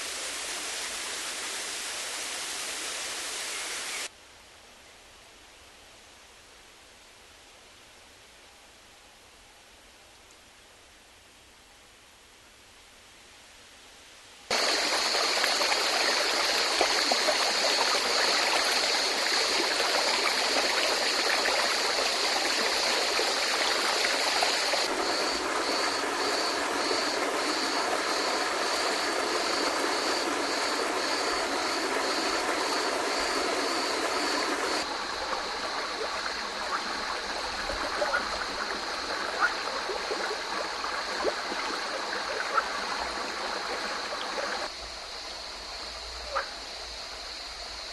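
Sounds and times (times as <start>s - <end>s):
stream rushing over rocks: 0.0s - 4.1s, 14.5s - 44.7s.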